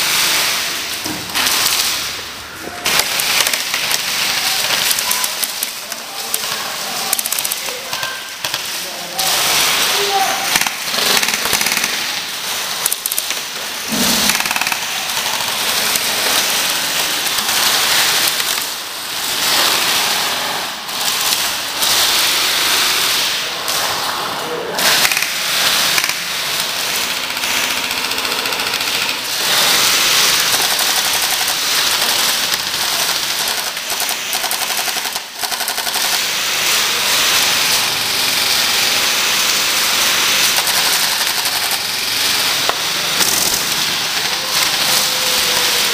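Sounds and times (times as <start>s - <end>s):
airsoft guns firing bursts: 2.8s - 23.2s, 24.8s - 45.9s.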